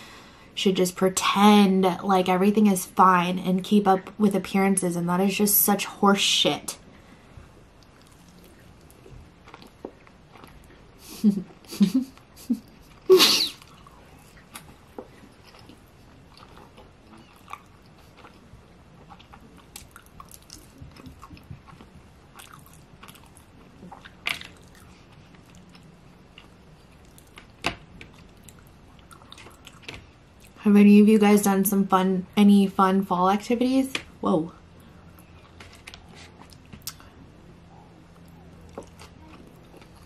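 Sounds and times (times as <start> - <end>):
close-miked chewing with crunches: 7.4 - 30.6, 34.8 - 40.0.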